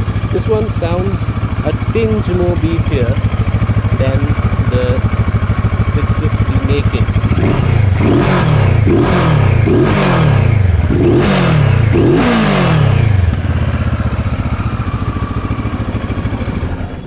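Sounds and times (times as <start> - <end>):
motorcycle engine revving and idling: 0.0 - 17.0.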